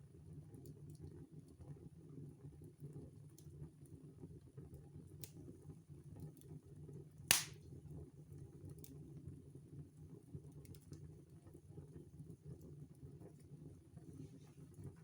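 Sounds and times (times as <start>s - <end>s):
loud sharp fire pop: 7.3s - 7.6s
wood fire crackling: 7.3s - 7.6s.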